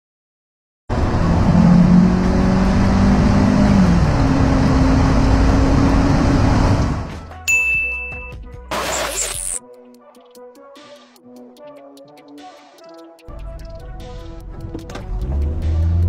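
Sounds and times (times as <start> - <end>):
car engine accelerating hard: 0.9 - 7.2, 14.9 - 16.0.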